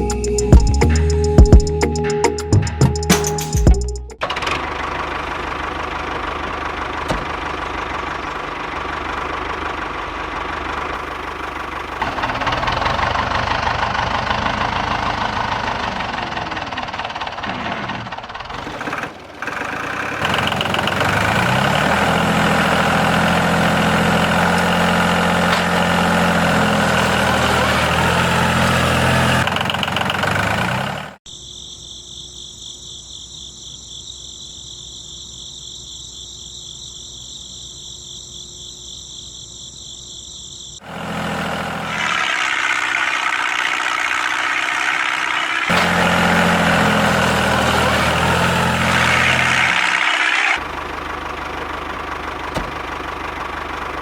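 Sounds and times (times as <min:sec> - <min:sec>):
small engine running: 0:03.6 - 0:31.2, 0:40.8 - 0:54.0
steady high whine: 0:41.9 - 0:45.8.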